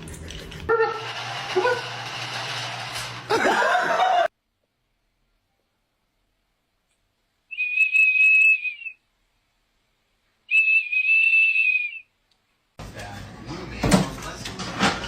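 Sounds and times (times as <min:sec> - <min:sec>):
high-pitched whistles: 0:07.5 - 0:09.0, 0:10.5 - 0:12.1.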